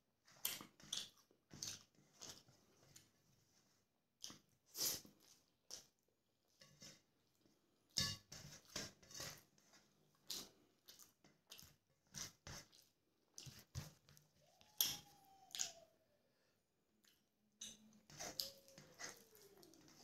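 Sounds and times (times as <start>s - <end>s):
fingers squishing rice on plate: 7.9s - 15.9s, 17.0s - 20.0s
wet chewing and lip smacks: 10.1s - 11.8s.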